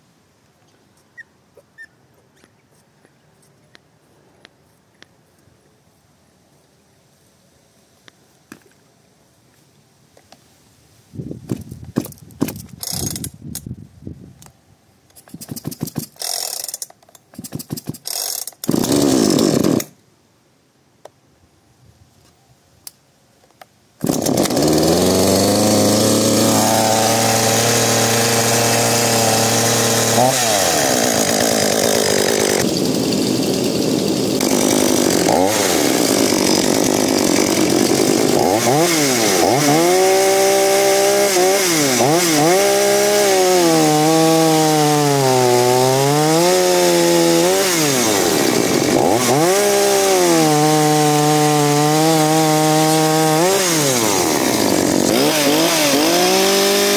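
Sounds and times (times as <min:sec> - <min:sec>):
chainsaw engine running: 0:17.4 - 0:19.9, 0:24.0 - 0:56.9.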